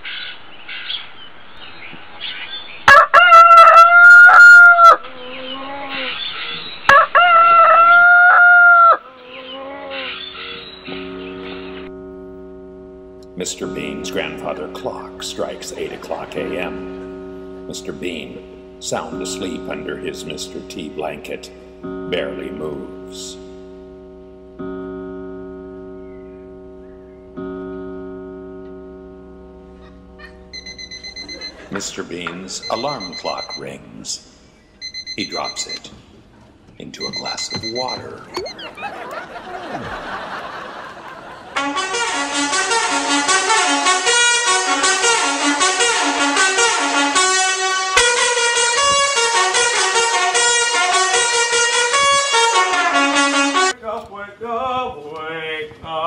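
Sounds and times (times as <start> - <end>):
rooster crowing: 2.9 - 10.6
birds chirping faintly: 9.0 - 39.1
grandfather clock striking: 10.6 - 33.8, 36.9 - 38.2.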